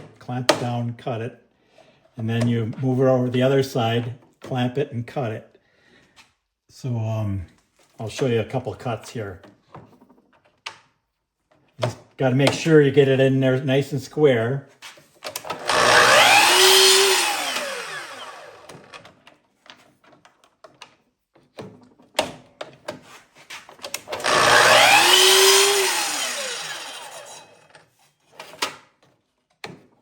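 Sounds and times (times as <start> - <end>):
clicks and knocks of handling: 9.4 - 12.7, 18.7 - 24.2, 27.7 - 30.0
miter saw cutting wood: 15.4 - 19.0, 24.1 - 27.7.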